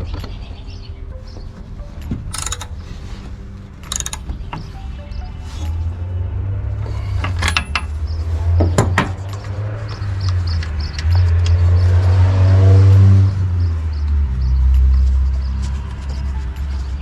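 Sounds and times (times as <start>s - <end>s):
sharp metallic clicks: 2.0s - 2.9s, 3.8s - 4.8s
small two-stroke engine running: 2.4s - 2.7s.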